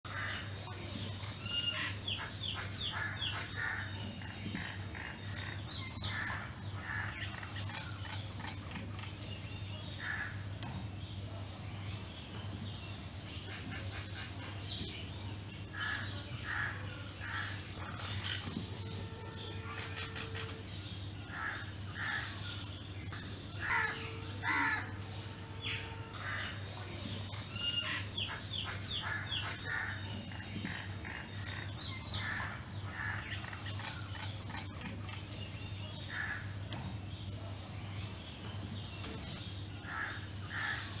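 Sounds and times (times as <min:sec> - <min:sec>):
birds calling: 0:00.1 - 0:41.0
steady low hum: 0:00.1 - 0:41.0
harsh crow-like bird calls: 0:23.6 - 0:25.0, 0:39.8 - 0:41.0.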